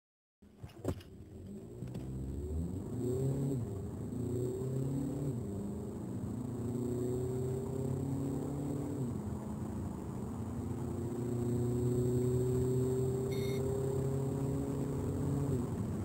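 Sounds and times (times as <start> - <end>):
car engine accelerating: 1.1 - 16.0
short electronic beep: 13.3 - 13.7.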